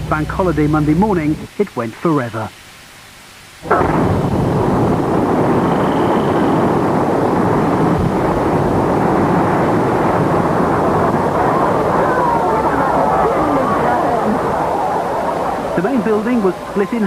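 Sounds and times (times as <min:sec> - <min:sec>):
building collapsing rumble: 0:03.6 - 0:17.0
explosive blast: 0:03.6 - 0:17.0.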